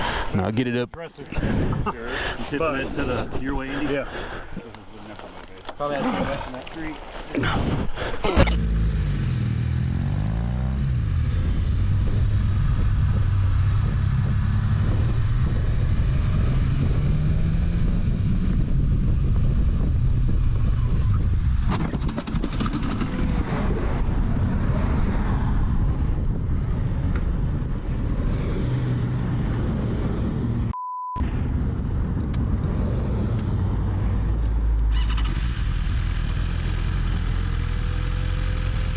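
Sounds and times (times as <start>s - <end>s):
road and wind noise: 0.0s - 38.9s
short sharp click: 8.2s - 8.6s
motorcycle engine running: 35.7s - 38.9s.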